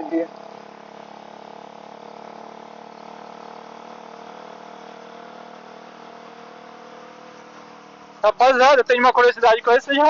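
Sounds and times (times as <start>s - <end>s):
muffled motorcycle engine: 0.0s - 10.0s.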